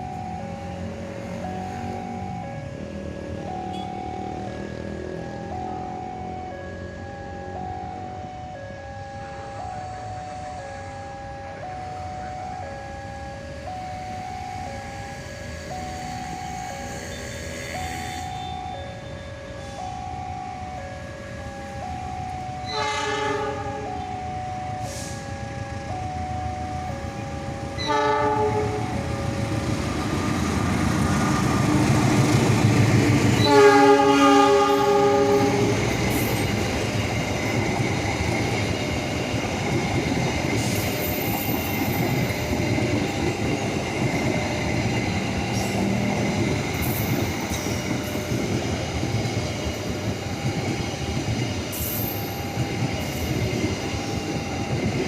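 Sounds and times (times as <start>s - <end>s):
train rumbling past: 0.0s - 55.0s
two-tone warning signal: 0.0s - 55.0s
train horn blasts: 22.6s - 23.9s, 27.8s - 28.9s, 33.4s - 35.8s.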